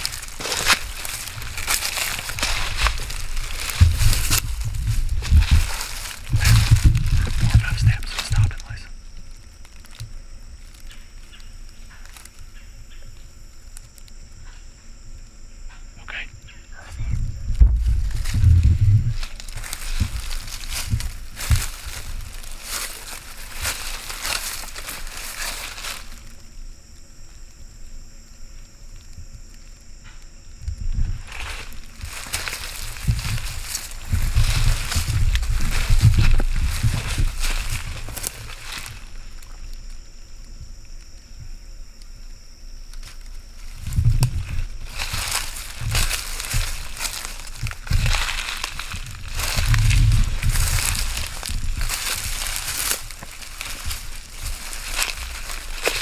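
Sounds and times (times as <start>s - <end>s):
low thuds: 0.0s - 8.2s, 16.9s - 26.1s, 43.7s - 56.0s
footsteps crunching through dry leaves: 0.0s - 15.0s, 15.8s - 41.1s, 42.4s - 56.0s.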